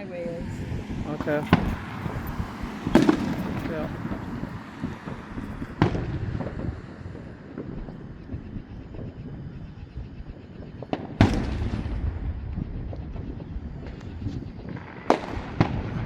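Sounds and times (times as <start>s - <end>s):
firework boom with rumbling echo: 0.6s - 16.0s
faint firework pops: 1.4s - 8.3s, 10.8s - 16.0s.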